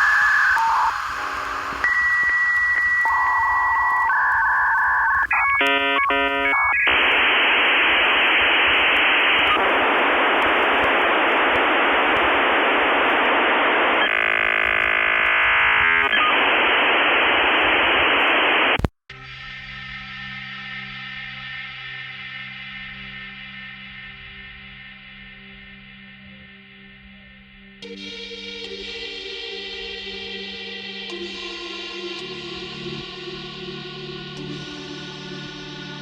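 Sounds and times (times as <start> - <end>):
dial-up modem handshake: 0.0 - 18.9.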